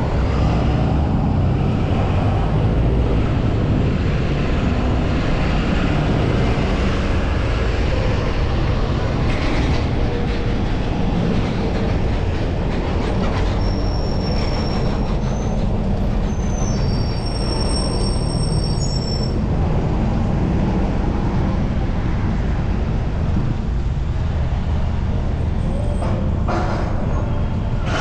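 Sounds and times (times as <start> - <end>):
wind and road noise rumble: 0.0 - 28.0.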